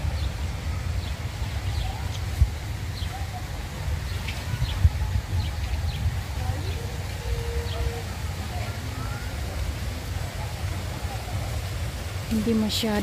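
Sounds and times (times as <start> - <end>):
small birds chirping: 0.0 - 9.5.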